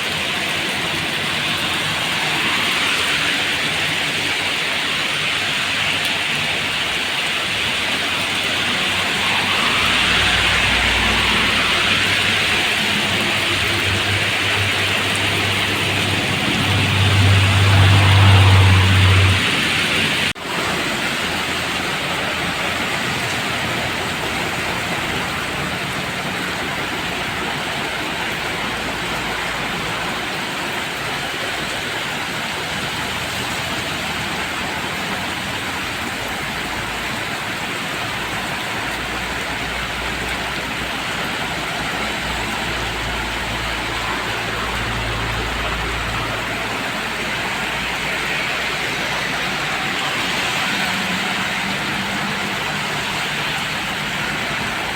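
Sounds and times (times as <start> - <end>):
steady rain hiss: 0.0 - 54.9
traffic on a wet road: 0.0 - 54.9
low vehicle engine rumble: 9.2 - 27.4.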